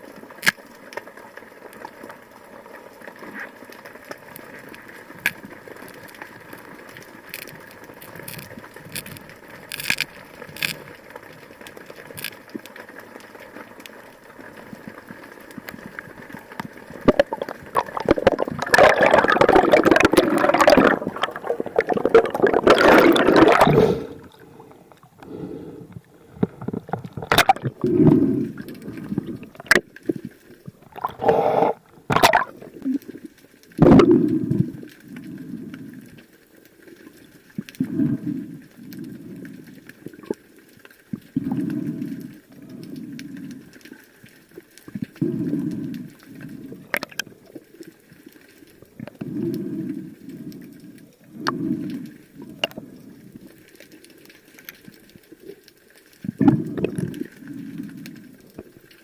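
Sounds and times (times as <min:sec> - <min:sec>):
water splashes: 0:15.6 - 0:25.4, 0:26.2 - 0:34.8
bubbling gurgling water rush: 0:15.7 - 0:34.9, 0:56.2 - 0:58.8.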